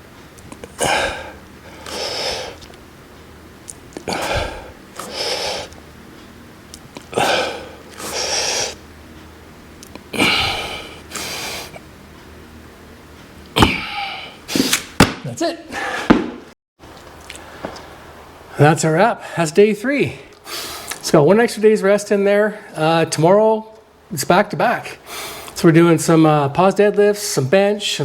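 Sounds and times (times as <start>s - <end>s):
man breathing hard: 0.7s - 2.7s, 4.0s - 5.8s, 7.1s - 8.8s, 10.2s - 11.8s, 13.6s - 14.9s, 15.7s - 16.4s, 20.4s - 21.0s, 25.0s - 25.6s.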